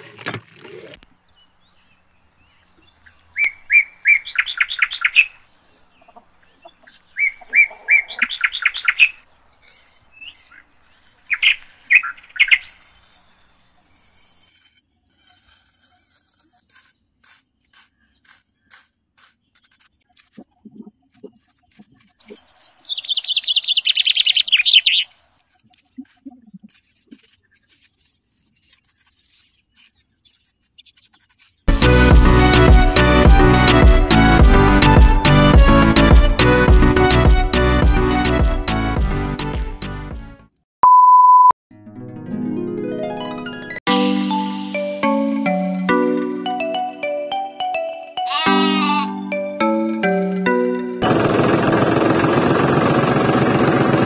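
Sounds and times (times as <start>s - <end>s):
bird chirping: 1.2s - 13.5s, 16.0s - 31.6s
small tool scraping in sand: 1.6s - 6.0s, 6.8s - 22.9s, 24.5s - 31.7s.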